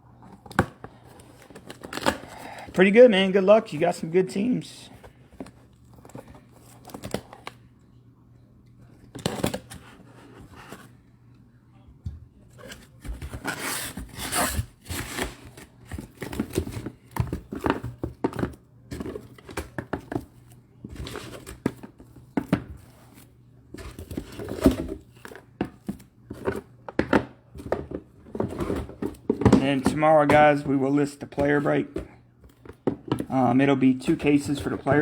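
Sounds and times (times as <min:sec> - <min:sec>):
boxes clicking and knocking: 0:12.6 - 0:22.9, 0:23.8 - 0:35.0.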